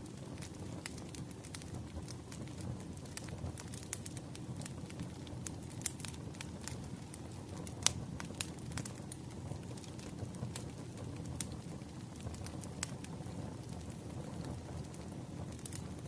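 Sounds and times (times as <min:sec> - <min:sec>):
fire low rumble: 0:00.0 - 0:16.0
wood fire crackling and popping: 0:00.0 - 0:16.0.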